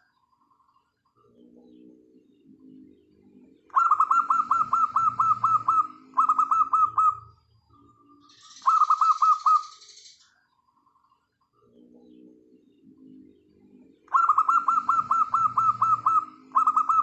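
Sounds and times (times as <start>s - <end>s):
dove cooing: 3.6s - 7.3s, 8.4s - 9.8s, 14.0s - 17.0s
softer lower cooing: 14.1s - 17.0s.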